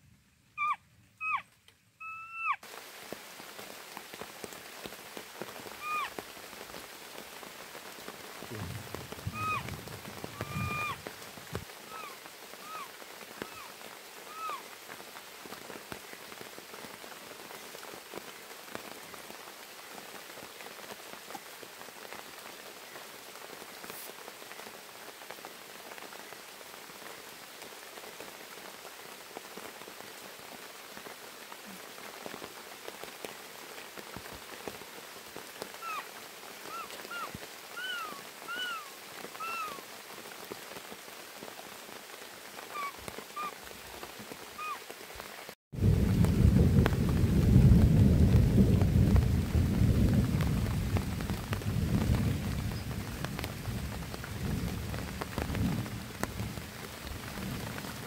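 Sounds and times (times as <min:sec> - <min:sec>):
steady rain: 0:00.0 - 0:58.0
short rising falling calls: 0:02.0 - 0:02.6, 0:09.3 - 0:11.0, 0:35.8 - 0:36.0, 0:36.7 - 0:39.8, 0:42.7 - 0:43.6.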